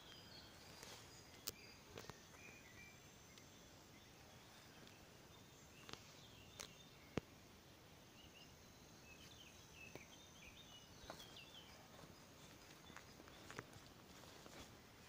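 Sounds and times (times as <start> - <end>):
thin steady high tone: 0.0 - 7.2
small bird chirping: 0.0 - 7.5, 8.1 - 14.7.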